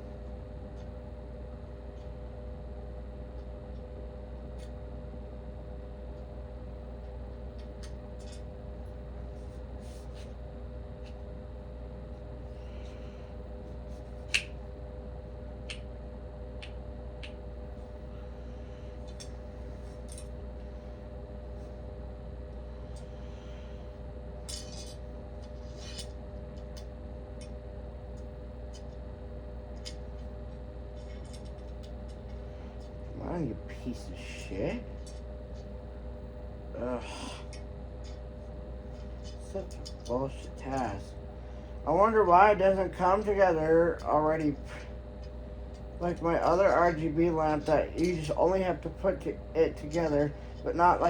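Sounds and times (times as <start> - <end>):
steady electrical hum: 0.0 - 51.0
metal lamp parts clinking: 24.4 - 26.2, 31.0 - 31.9, 38.9 - 40.8, 42.9 - 51.0
small parts clicking and scraping: 24.5 - 26.2, 31.0 - 32.4.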